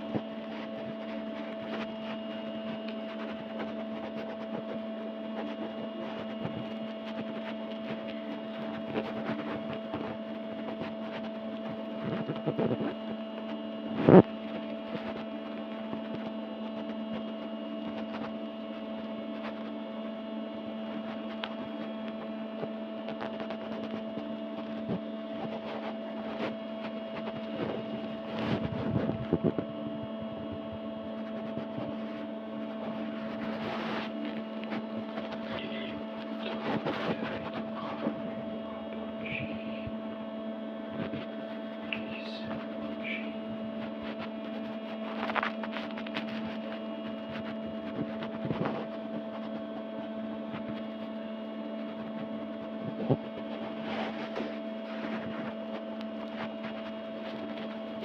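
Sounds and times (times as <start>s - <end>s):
rustling handling noise: 0.0s - 40.2s
steady electrical hum: 0.0s - 58.0s.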